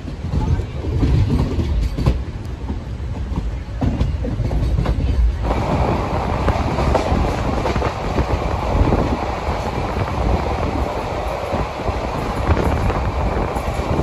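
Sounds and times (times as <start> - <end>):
train rumbling along track: 0.0 - 14.0
wheels clicking over rail joints: 0.0 - 14.0
rushing noise: 5.3 - 14.0.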